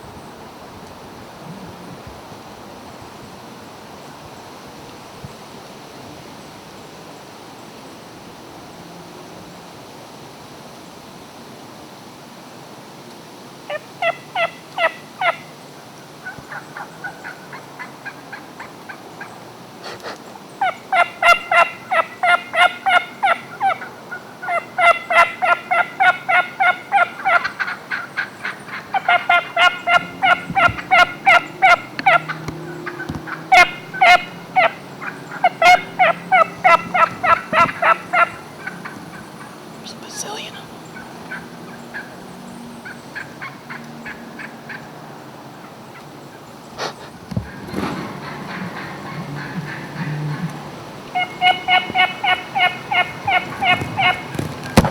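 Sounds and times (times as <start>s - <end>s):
wild turkeys calling: 13.7s - 15.5s, 16.2s - 44.9s, 46.8s - 54.9s.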